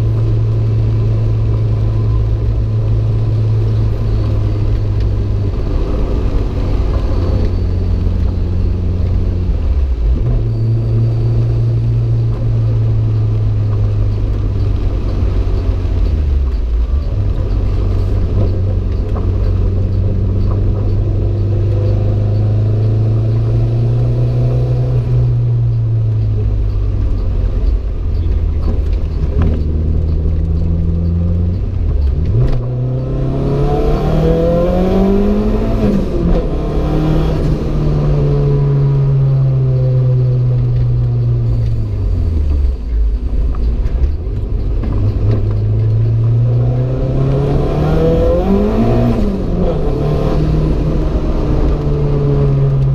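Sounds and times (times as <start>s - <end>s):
car engine running under load: 0.0s - 52.9s.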